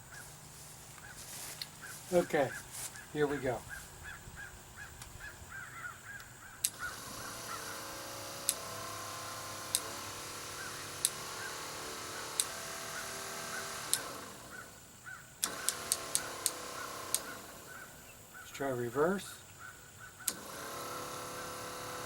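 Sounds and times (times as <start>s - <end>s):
electric motor hum: 6.6s - 18.0s, 20.3s - 22.0s.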